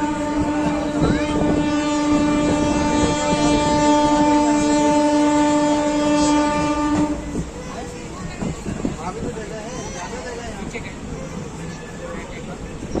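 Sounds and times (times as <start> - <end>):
train horn blast: 0.0 - 7.5.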